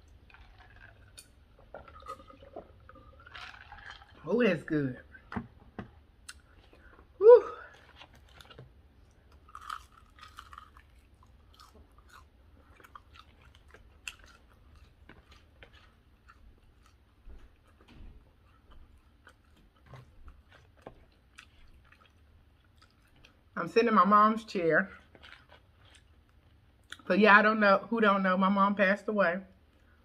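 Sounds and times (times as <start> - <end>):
chewing crispy chicken crunches: 0.0 - 1.2, 1.8 - 4.2, 7.6 - 23.6, 24.9 - 27.0.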